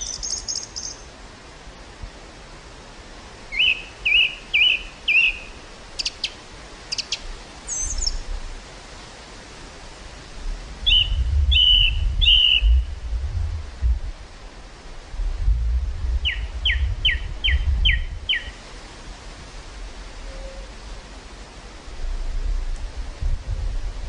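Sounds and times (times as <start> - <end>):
songbirds whistling: 0.0 - 1.1, 3.5 - 8.2, 10.8 - 12.9, 16.2 - 18.6
wind buffeting microphone: 10.1 - 20.2, 21.8 - 24.0.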